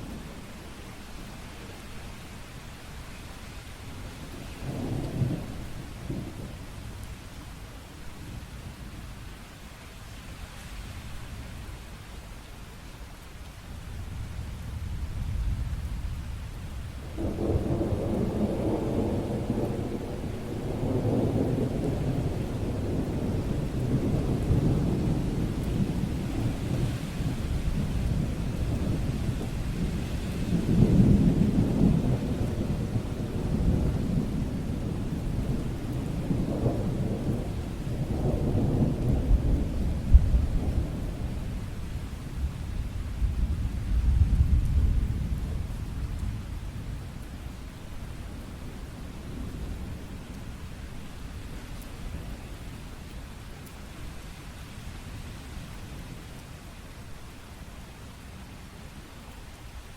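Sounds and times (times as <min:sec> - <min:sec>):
steady rain: 0:00.0 - 0:59.9
rolling thunder: 0:14.0 - 0:50.4.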